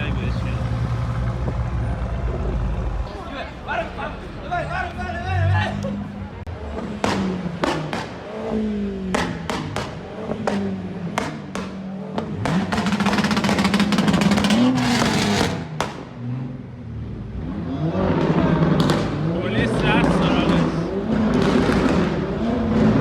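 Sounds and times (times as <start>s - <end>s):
sports car engines revving: 0.0s - 23.0s
sharp exhaust pops: 7.0s - 8.2s, 9.1s - 16.3s, 18.2s - 19.2s, 20.4s - 23.0s.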